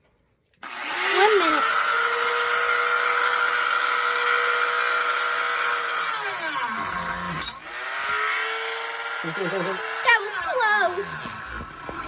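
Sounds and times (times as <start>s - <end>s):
rotary tool cutting wood: 0.6s - 12.0s.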